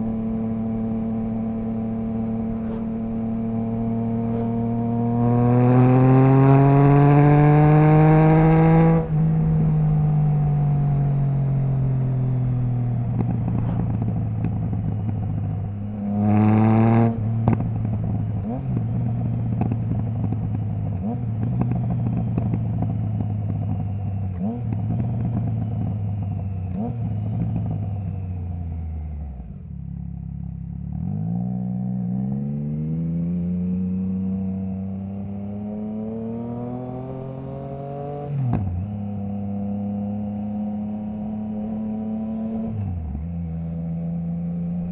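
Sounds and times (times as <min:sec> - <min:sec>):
motorcycle engine revving: 0:00.0 - 0:44.9
exhaust crackles and pops: 0:02.4 - 0:03.2, 0:13.0 - 0:15.7.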